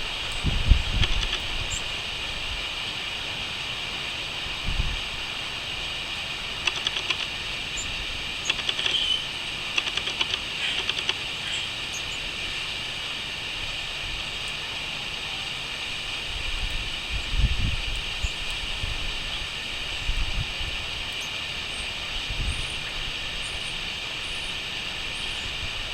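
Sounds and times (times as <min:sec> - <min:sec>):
crickets chirping: 0:00.0 - 0:25.9
bird chirping: 0:06.6 - 0:12.7.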